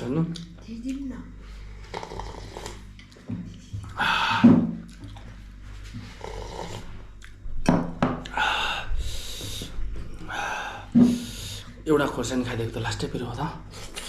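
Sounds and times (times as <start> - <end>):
slurping: 1.9 - 3.2
lip and mouth clicks: 6.7 - 7.4
sharp hissing breaths: 8.3 - 11.7.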